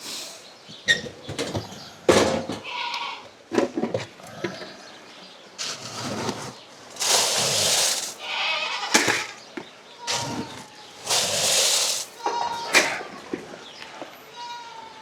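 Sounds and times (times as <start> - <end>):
grain being poured: 5.6 - 9.4, 10.1 - 12.2.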